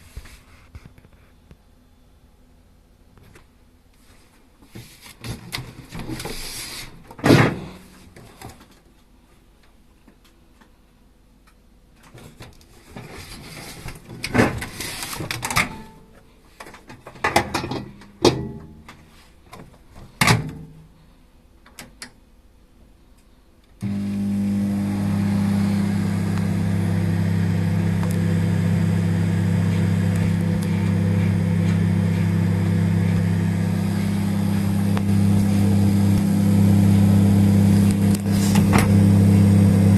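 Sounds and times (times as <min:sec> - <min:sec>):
rustling and sliding: 0:00.0 - 0:01.4, 0:04.0 - 0:07.0, 0:12.7 - 0:15.4.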